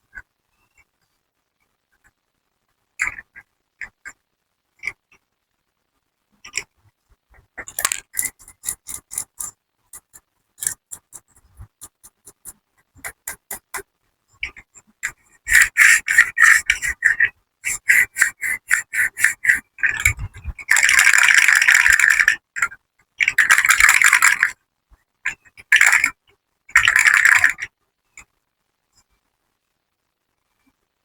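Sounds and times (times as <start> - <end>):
crisp rapid clicking: 7.6 - 13.8, 15.0 - 19.6.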